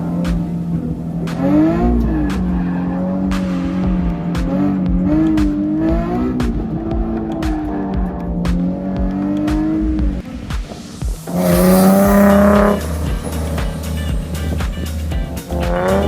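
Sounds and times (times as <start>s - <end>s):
car engine revving: 0.0s - 16.0s
tire squeal: 1.6s - 3.9s, 11.3s - 15.0s.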